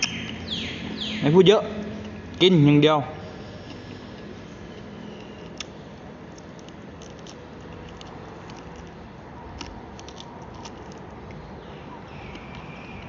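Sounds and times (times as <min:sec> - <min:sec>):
crunchy chewing: 0:03.2 - 0:13.0.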